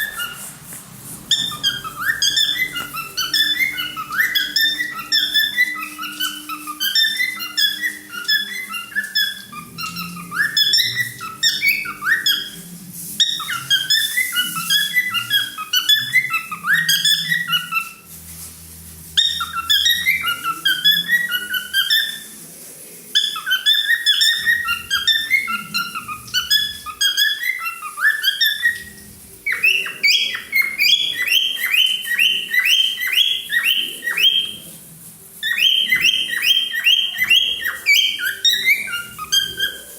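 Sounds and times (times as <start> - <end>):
cockatiel whistling and chirping: 0.0 - 0.5, 1.3 - 18.1, 19.2 - 22.4, 23.1 - 34.8, 35.4 - 39.9.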